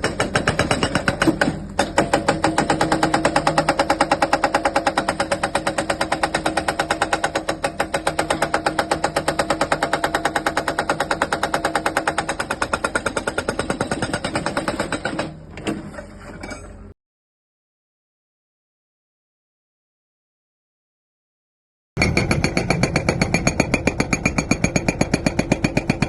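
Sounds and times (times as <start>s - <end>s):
hydraulic breaker hammering: 0.0s - 15.4s.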